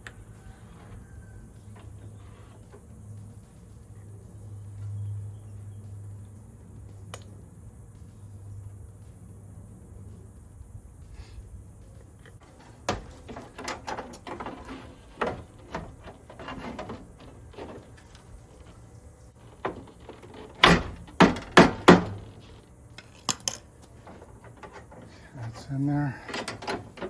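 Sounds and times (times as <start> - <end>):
tools clicking on truck door: 12.4 - 18.8, 19.4 - 27.0
sharp loud knocks: 19.6 - 22.4.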